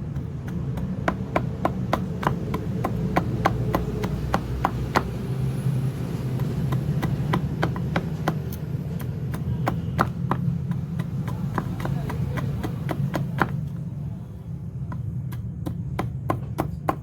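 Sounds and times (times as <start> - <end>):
chopping strikes on wood: 0.1 - 5.2, 6.4 - 13.8, 14.8 - 17.0.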